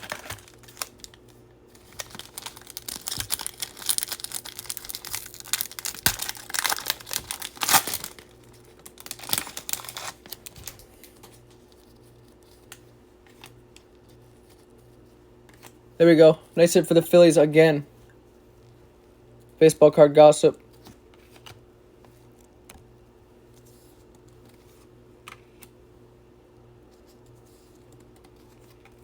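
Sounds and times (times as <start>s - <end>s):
foil wrapper crinkling and tearing: 0.0s - 12.4s.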